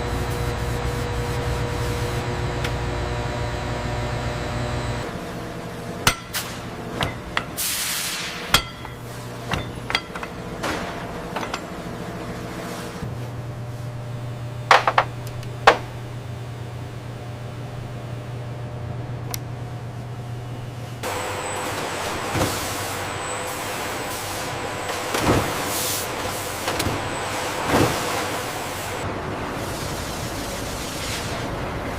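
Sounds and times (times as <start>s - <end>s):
low machine hum: 0.0s - 30.7s
metal clanks and knocks: 6.0s - 7.6s, 8.5s - 12.0s.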